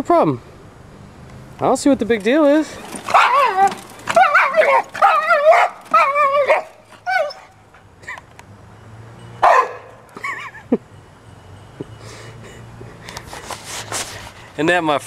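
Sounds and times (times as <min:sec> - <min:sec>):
dog howling and barking: 0:03.0 - 0:07.6.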